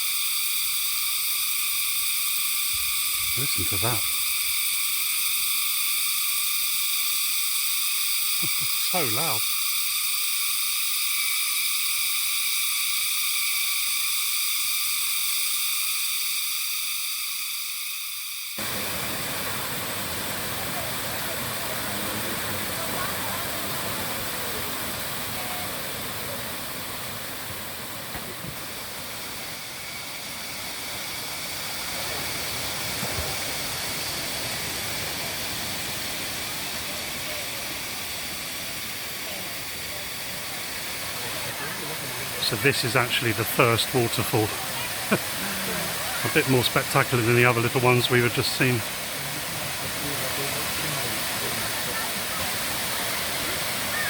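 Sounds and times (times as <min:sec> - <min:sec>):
cicadas chorus: 0:00.0 - 0:54.0
insects droning: 0:00.0 - 0:54.0
waterfall rushing: 0:18.6 - 0:54.0.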